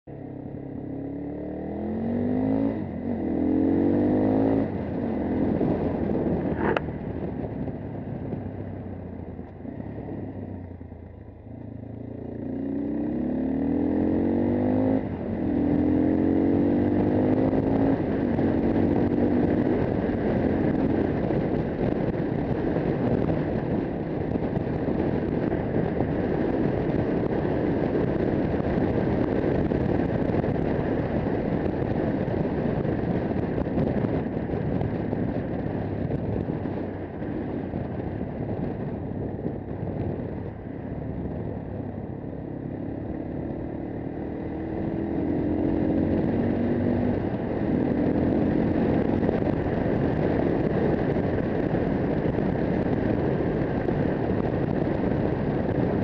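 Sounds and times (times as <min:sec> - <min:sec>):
motorcycle engine accelerating: 0:00.0 - 0:56.0
wind on microphone: 0:00.2 - 0:11.0, 0:11.7 - 0:56.0.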